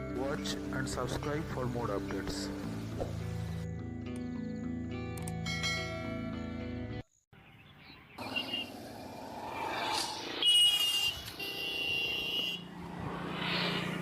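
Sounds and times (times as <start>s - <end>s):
vehicles passing: 8.2s - 14.0s
vehicle horn blasts: 10.4s - 12.6s.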